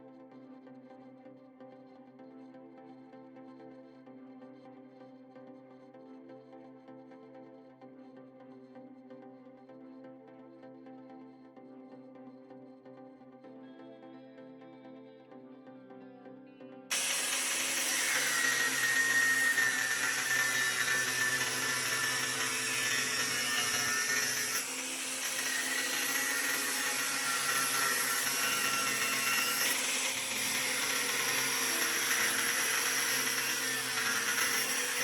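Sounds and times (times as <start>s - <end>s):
power tool whining: 16.9s - 35.0s.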